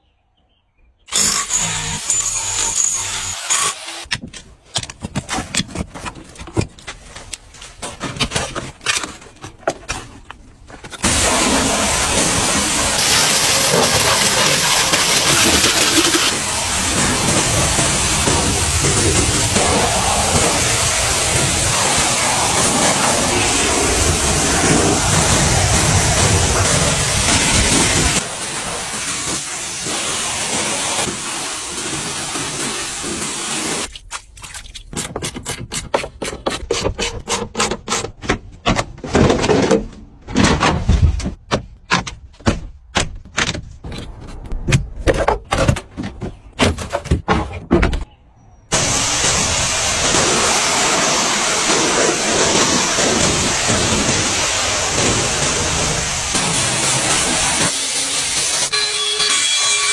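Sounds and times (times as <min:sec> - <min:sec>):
pressure washer spray hissing: 0:11.0 - 0:33.9, 0:48.8 - 0:58.7.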